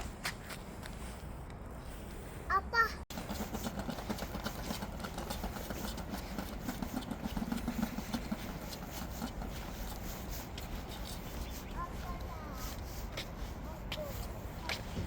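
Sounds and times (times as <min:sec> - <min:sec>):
engine humming: 0:03.1 - 0:12.6.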